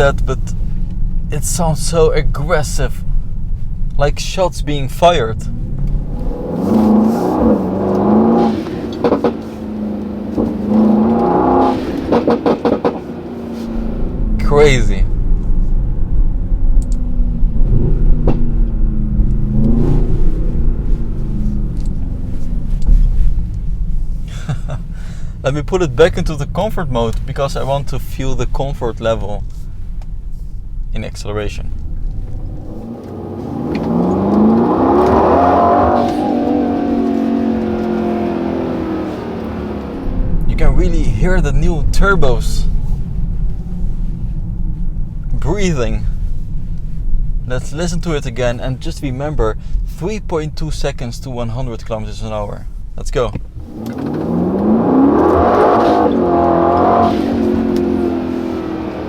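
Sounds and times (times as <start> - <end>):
car engine accelerating: 0.0 - 59.0
exhaust pops and cracks: 5.5 - 15.8, 16.6 - 58.7
turbos breathing: 17.2 - 26.1, 41.2 - 47.5, 49.5 - 50.0.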